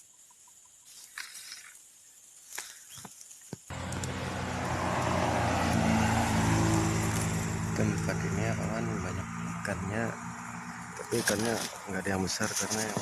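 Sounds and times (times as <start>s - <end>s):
loud steady engine: 3.7s - 11.9s.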